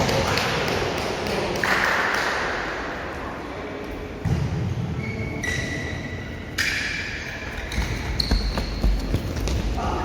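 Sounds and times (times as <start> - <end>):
ball kicked and bouncing: 7.6 - 9.8.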